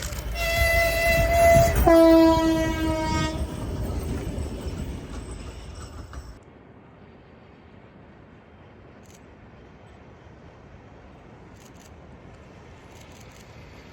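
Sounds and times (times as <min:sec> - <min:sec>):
train running with rail clatter: 0:00.0 - 0:13.9
locomotive horn: 0:00.3 - 0:03.6.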